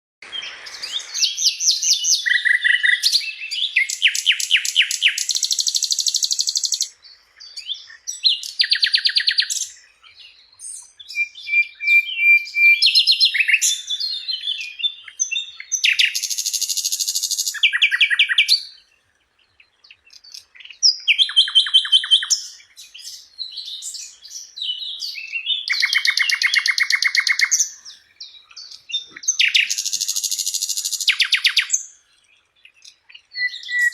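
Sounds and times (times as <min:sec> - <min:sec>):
bird singing chirps and trills: 0:00.2 - 0:33.9.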